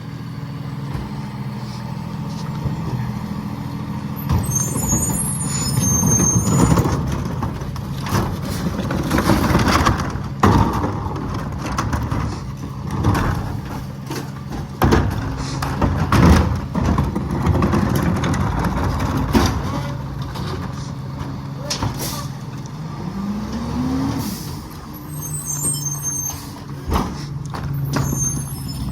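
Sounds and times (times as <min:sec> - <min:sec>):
diesel truck engine running: 0:00.0 - 0:28.9
brief high squeal: 0:04.4 - 0:06.7, 0:25.1 - 0:26.6, 0:27.9 - 0:28.9.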